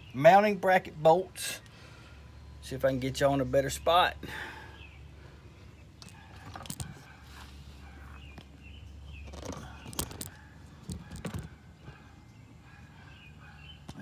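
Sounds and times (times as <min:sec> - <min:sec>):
low steady hum: 0:00.0 - 0:14.0
sharp clicks and knocks: 0:09.2 - 0:11.6.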